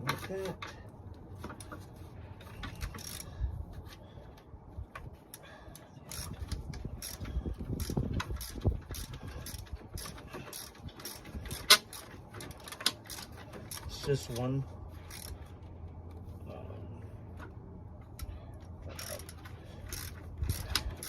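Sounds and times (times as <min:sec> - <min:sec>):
hand ratchet clicking: 0:00.0 - 0:04.0, 0:04.9 - 0:14.4, 0:15.0 - 0:15.6, 0:17.4 - 0:21.0
metal parts scraping and knocking: 0:01.4 - 0:04.0, 0:06.1 - 0:16.3, 0:17.3 - 0:21.0.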